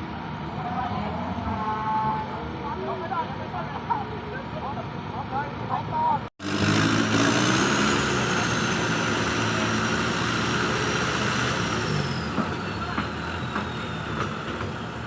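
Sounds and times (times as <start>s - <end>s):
off-road vehicle engine running hard: 6.4s - 15.0s.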